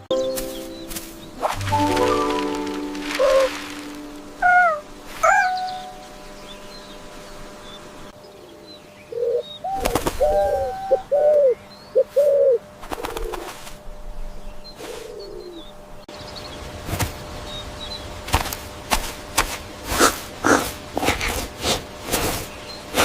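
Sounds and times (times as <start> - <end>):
bird cooing calls: 1.9 - 6.0, 8.3 - 13.6, 14.7 - 15.8.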